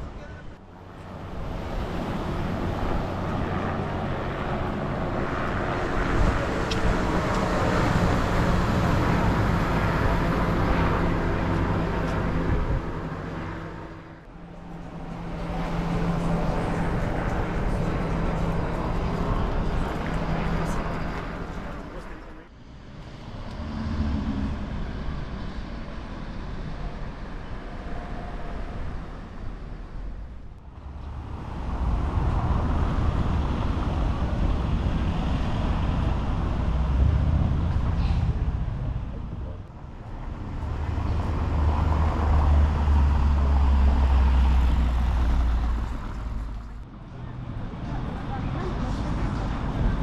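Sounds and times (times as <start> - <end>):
road traffic rumble: 0.0 - 50.0.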